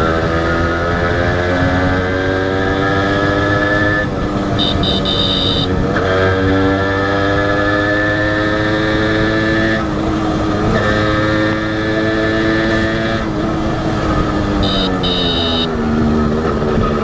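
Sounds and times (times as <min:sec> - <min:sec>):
two-stroke engine accelerating: 0:04.6 - 0:09.8, 0:10.4 - 0:17.0.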